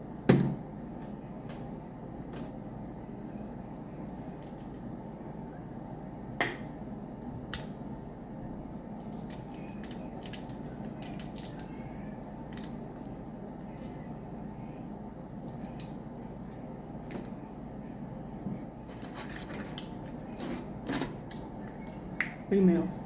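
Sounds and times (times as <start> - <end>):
steady low hum: 0.0 - 23.0
shells cracking and snapping: 7.2 - 7.8, 9.0 - 13.2.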